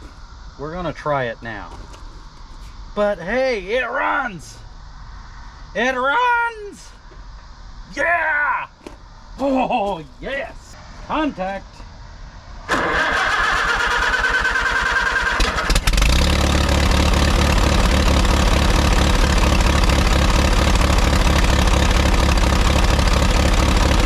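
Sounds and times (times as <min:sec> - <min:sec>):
electric starter cranking engine: 0:12.7 - 0:20.1
tractor engine running: 0:12.7 - 0:24.0.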